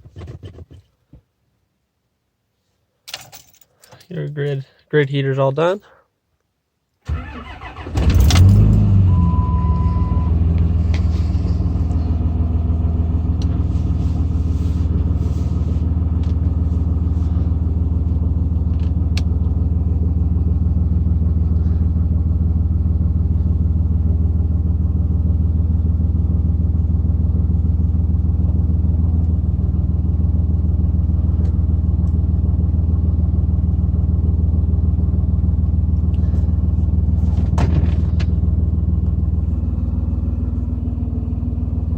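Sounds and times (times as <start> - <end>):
diesel engine starting and idling: 7.0 - 41.9
short beep: 8.8 - 10.5.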